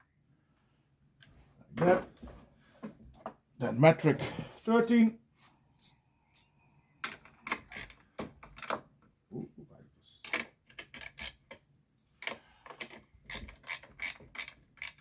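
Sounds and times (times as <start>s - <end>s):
wrench clicking and clinking on metal: 10.2s - 11.5s, 12.2s - 15.0s.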